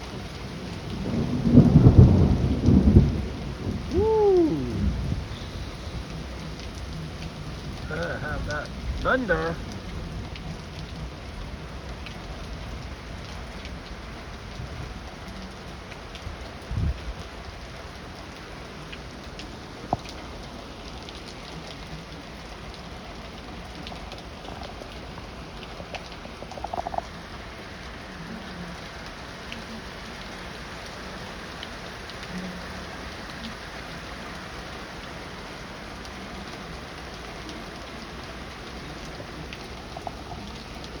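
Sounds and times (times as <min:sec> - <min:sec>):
heavy rain falling: 0:00.0 - 0:41.0.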